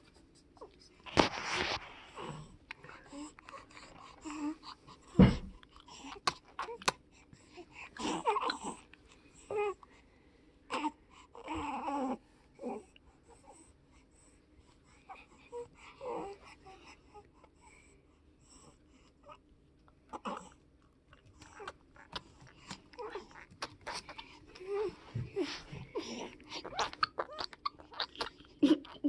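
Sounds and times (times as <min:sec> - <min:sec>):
baby grunting and whimpering: 0:08.0 - 0:08.9, 0:20.1 - 0:20.6, 0:23.0 - 0:29.0.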